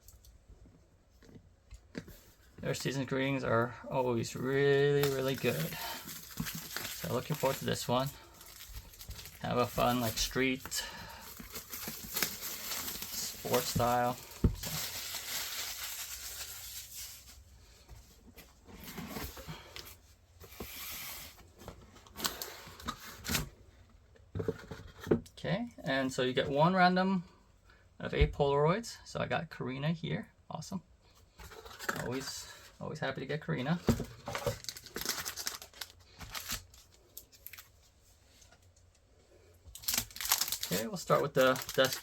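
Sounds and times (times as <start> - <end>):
packaging rustling and crinkling: 3.9 - 23.5, 33.7 - 38.7, 39.7 - 42.0.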